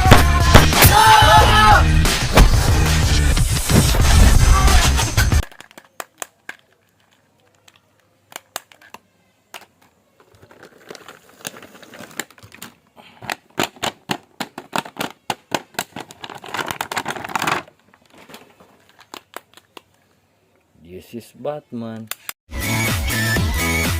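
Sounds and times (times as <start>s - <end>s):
plastic clicks and taps: 5.4s - 9.9s
packaging crinkling and rustling: 10.2s - 20.0s.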